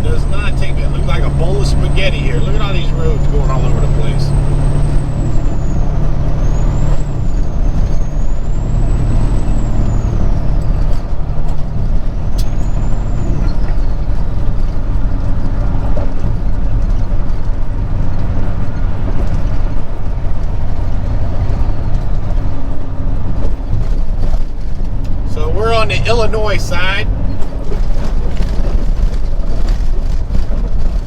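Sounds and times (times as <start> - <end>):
road noise: 0.0 - 31.0
truck diesel engine drone: 0.0 - 31.0.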